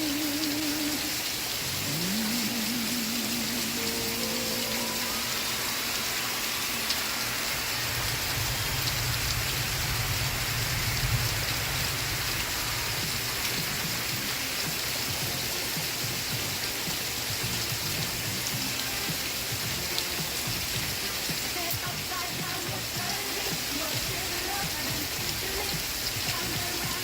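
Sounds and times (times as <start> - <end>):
rain falling: 0.0 - 27.0
low rumble: 7.6 - 14.4.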